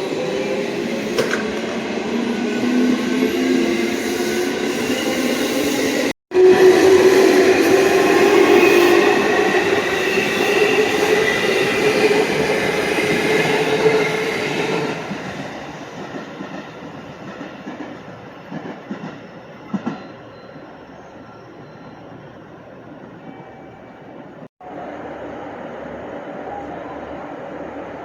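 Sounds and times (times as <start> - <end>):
electric train rumbling and whining: 0.0 - 28.0
train wheel clacks: 15.9 - 20.1.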